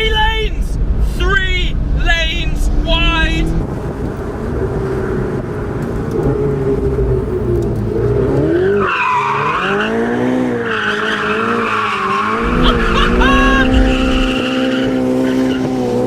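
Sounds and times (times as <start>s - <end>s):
car engine revving: 0.8s - 16.0s
tyre squeal: 8.6s - 15.8s.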